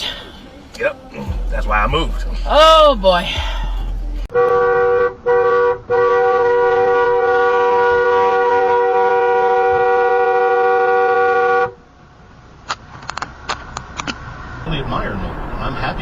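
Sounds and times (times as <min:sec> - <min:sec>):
car horn honking: 0:01.3 - 0:11.8.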